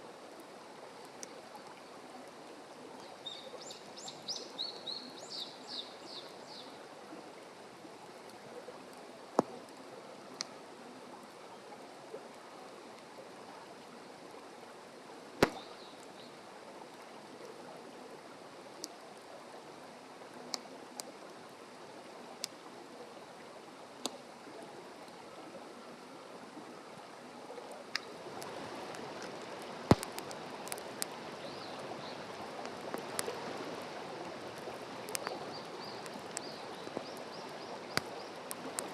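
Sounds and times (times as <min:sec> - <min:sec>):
fire popping: 0:15.4 - 0:15.9, 0:27.9 - 0:38.9
wood fire crackling: 0:15.4 - 0:16.1, 0:27.9 - 0:38.9.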